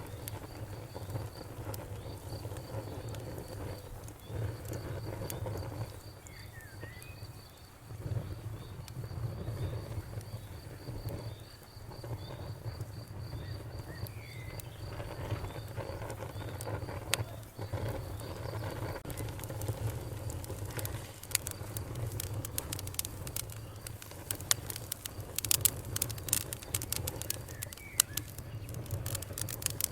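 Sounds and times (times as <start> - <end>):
fire crackling: 0.0 - 29.9
flames rumbling: 0.0 - 29.9
sharp pop of fire: 0.0 - 29.9.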